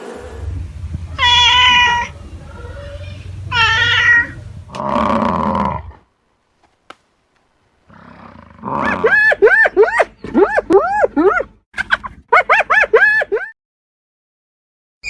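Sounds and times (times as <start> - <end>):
big cat roaring: 4.1 - 6.0, 7.9 - 9.1.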